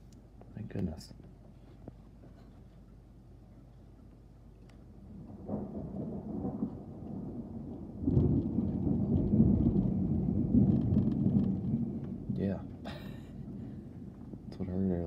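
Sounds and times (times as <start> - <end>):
deep thunder rumbling: 4.9 - 15.0.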